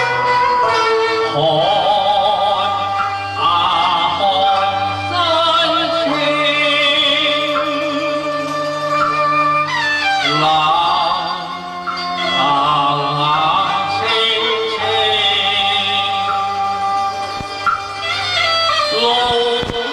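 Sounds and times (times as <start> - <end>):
opera melody with vibrato: 0.0 - 19.9
steady lower notes: 0.0 - 19.9.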